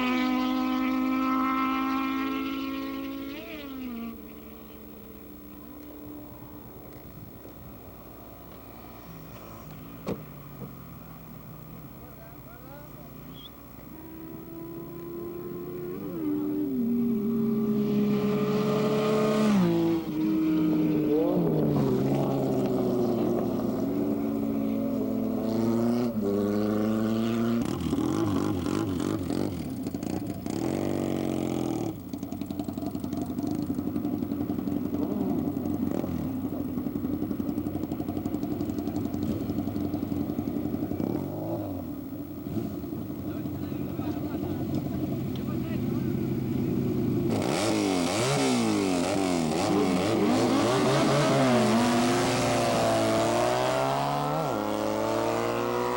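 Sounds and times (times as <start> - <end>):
motorcycle engines revving: 0.0 - 55.9.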